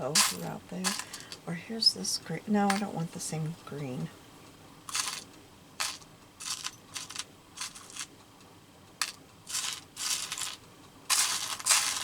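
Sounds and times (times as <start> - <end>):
small metal brads clinking: 0.0 - 1.4, 2.6 - 3.0, 4.9 - 8.1, 9.0 - 12.0.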